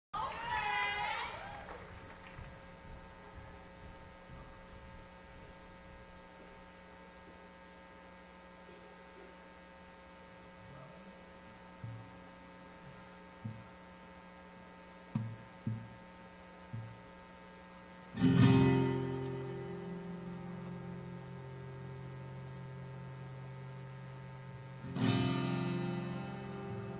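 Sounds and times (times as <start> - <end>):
faint mains hum: 0.2 - 26.9
soft low knocks: 11.8 - 13.8, 15.1 - 16.1, 16.7 - 17.2
strummed acoustic guitar: 15.1 - 17.3, 18.1 - 26.9.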